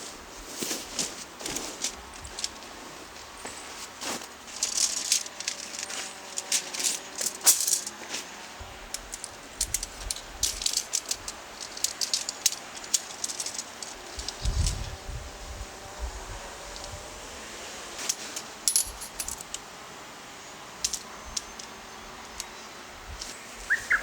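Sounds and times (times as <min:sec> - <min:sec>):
small hard objects clicking and rattling: 0:01.5 - 0:02.7, 0:03.5 - 0:14.8, 0:18.0 - 0:19.6, 0:20.8 - 0:22.6.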